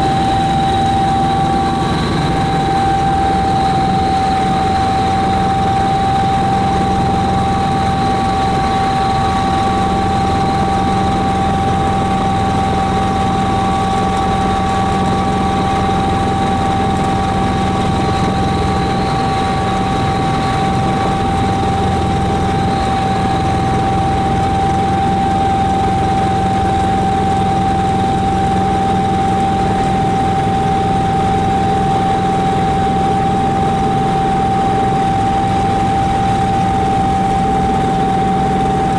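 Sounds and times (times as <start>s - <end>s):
constant whine: 0.0s - 38.9s
helicopter engine and rotor drone: 0.0s - 38.9s.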